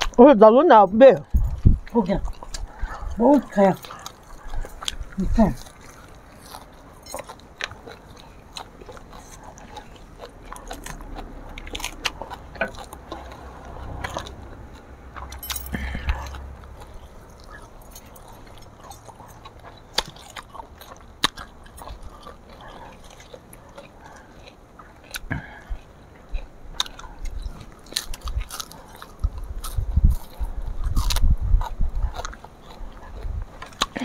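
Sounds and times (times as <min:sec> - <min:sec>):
chewing and crunching food: 0:00.0 - 0:34.0
low rumble: 0:10.2 - 0:19.1.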